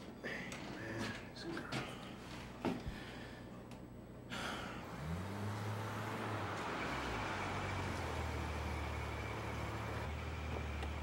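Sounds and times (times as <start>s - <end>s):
car engine running low: 4.8s - 11.0s.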